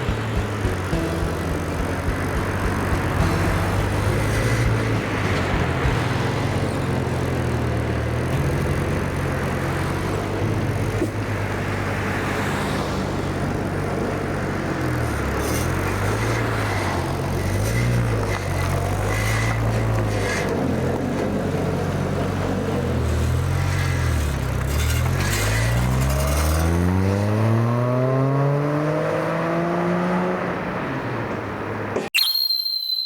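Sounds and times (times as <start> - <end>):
car engine running: 0.0 - 11.7.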